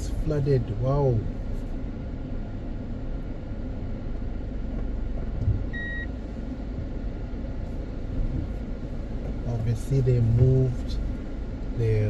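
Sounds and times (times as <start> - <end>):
car road and engine rumble: 0.0 - 12.0
low thump: 4.7 - 5.8
high beep: 5.7 - 6.1.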